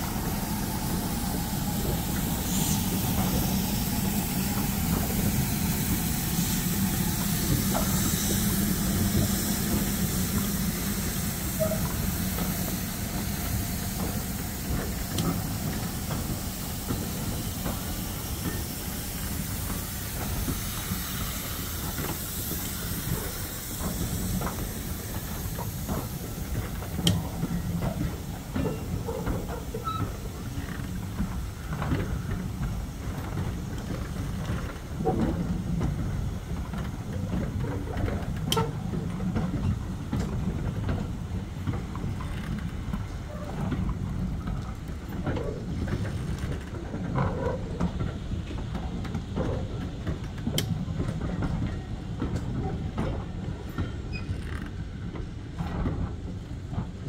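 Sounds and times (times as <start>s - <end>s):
train rumbling on rails: 0.0s - 57.0s
running gear clicks and squeals: 28.6s - 31.0s, 53.7s - 54.8s.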